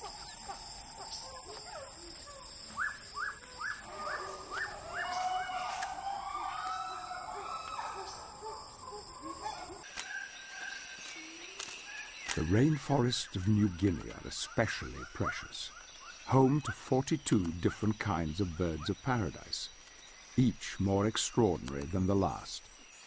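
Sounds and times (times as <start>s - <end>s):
birds calling: 0.0s - 23.0s.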